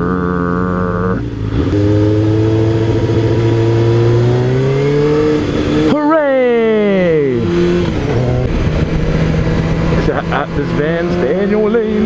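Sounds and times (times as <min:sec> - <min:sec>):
motorcycle engine accelerating: 0:00.0 - 0:12.0
wind noise: 0:07.4 - 0:12.0.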